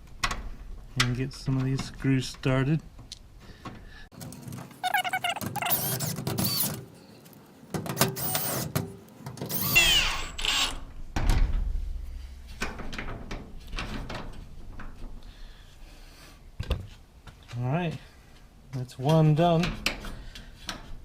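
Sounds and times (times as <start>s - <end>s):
power drill driving screws: 4.8s - 6.8s, 8.0s - 8.8s, 9.4s - 10.8s.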